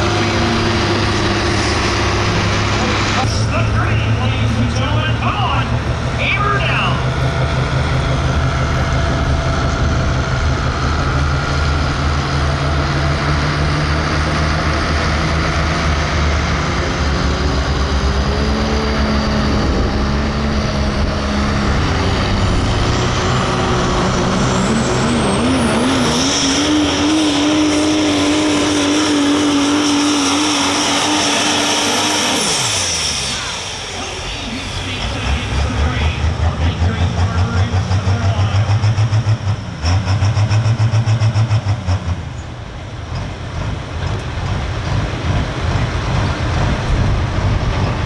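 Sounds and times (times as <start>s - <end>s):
diesel truck engine under load: 0.0s - 48.0s
turbocharger whine: 0.0s - 48.0s.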